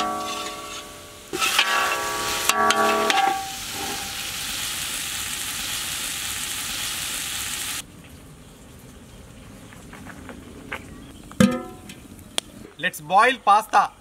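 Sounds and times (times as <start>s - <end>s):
metal utensil scraping a pan: 0.0s - 4.4s
chicken sizzling in a wok: 0.0s - 7.8s.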